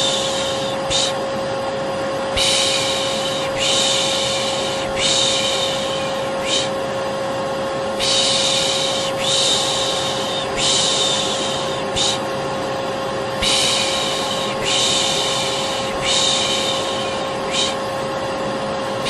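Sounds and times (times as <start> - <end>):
person shushing: 0.0 - 1.2, 2.4 - 6.8, 8.0 - 12.3, 13.4 - 17.8
vacuum cleaner humming: 0.0 - 19.0.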